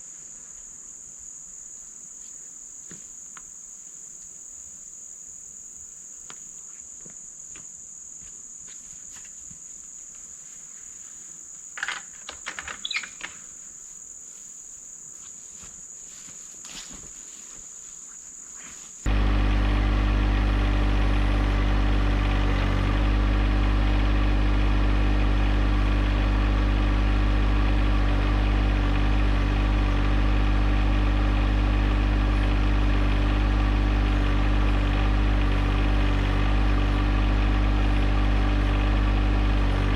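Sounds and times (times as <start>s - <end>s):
insect chirps: 0.0s - 19.1s
insects buzzing: 0.0s - 39.9s
diesel tractor engine running: 19.1s - 39.9s.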